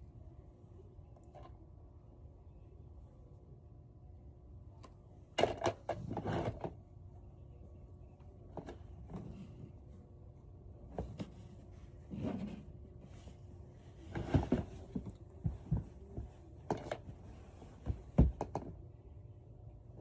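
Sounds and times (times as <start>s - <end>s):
faint steady hum: 0.0s - 20.0s
soft thumps and knocks: 17.8s - 18.7s.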